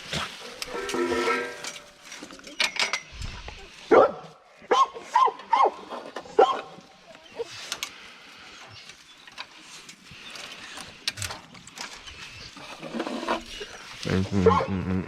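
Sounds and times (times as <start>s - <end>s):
low dog growl: 14.0s - 15.0s.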